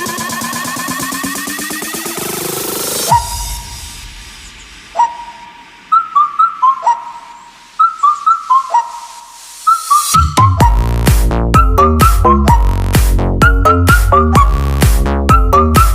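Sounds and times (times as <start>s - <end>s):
electronic dance beat with deep bass: 0.0s - 7.8s, 9.1s - 15.9s
whistled tune: 3.0s - 3.9s, 4.9s - 15.9s.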